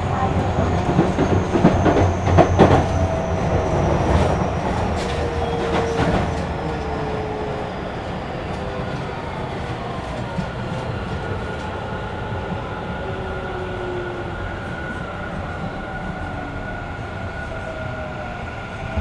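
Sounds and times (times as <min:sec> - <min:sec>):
train wheels rumbling: 0:00.0 - 0:12.8.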